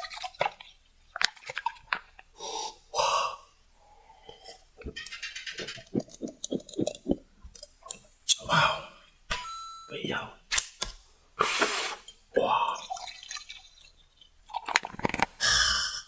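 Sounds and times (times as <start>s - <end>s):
rhythmic chewing: 0.0s - 9.2s
breathy gasps: 2.4s - 4.6s, 8.4s - 9.1s, 15.4s - 16.0s
mouth clicks: 4.3s - 8.9s.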